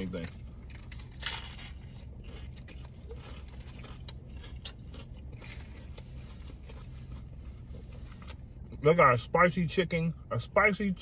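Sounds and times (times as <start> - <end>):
person chewing crunchy food: 0.0 - 8.8
steady low hum: 0.0 - 11.0.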